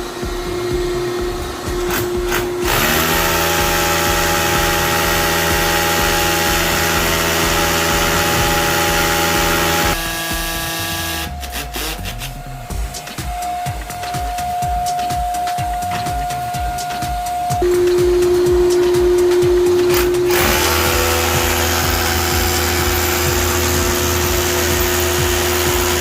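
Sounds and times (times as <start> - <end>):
power tool motor spinning: 0.0 - 12.8, 18.4 - 26.0.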